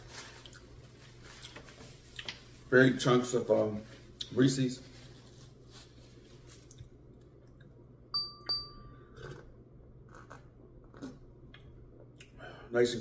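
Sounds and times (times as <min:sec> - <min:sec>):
bright ding double strike: 0:08.2 - 0:09.0.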